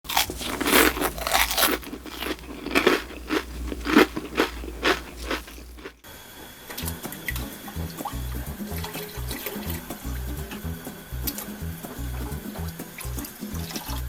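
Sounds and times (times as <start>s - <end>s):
crunchy chewing of food: 0.0s - 6.0s.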